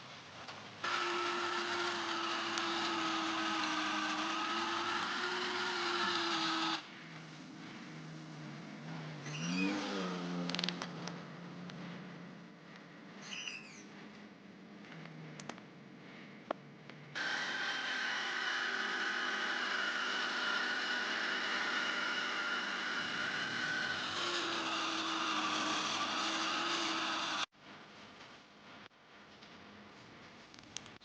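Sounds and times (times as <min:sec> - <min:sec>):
electric grinder grinding steel: 0:00.8 - 0:06.9, 0:17.2 - 0:27.5.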